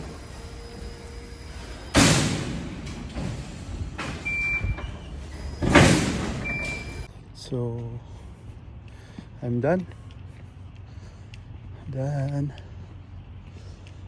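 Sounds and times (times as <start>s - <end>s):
loud sudden bursts: 0.0s - 4.7s.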